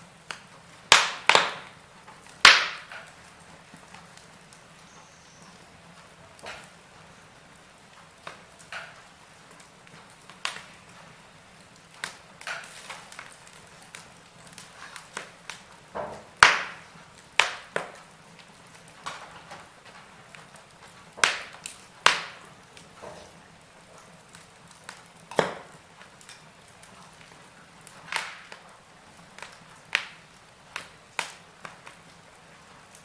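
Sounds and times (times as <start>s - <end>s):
wood fire pops and snaps: 0.1s - 33.0s.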